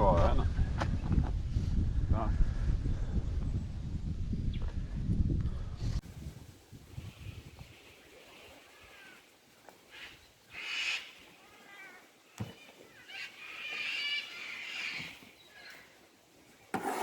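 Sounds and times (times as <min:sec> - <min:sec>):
animal cries: 0:10.0 - 0:15.7.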